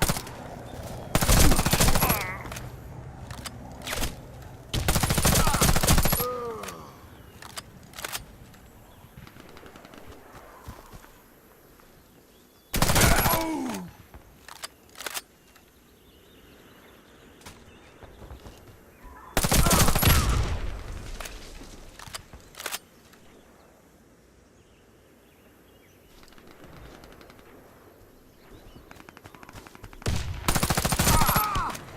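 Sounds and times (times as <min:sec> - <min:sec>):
automatic gunfire bursts: 0:30.5 - 0:31.6.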